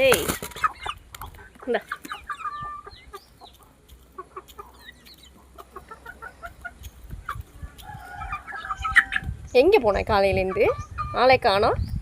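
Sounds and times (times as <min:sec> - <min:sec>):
chicken clucking: 0:00.0 - 0:11.8.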